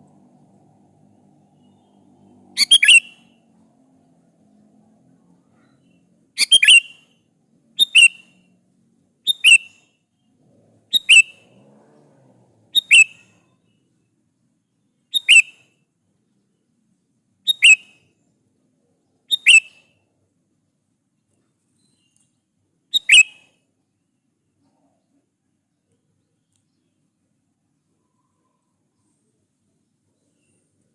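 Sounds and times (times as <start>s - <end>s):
bird double-note calls: 2.6s - 3.4s, 6.4s - 7.1s, 7.8s - 8.3s, 9.3s - 9.8s, 10.9s - 11.4s, 15.1s - 15.6s, 19.3s - 19.9s.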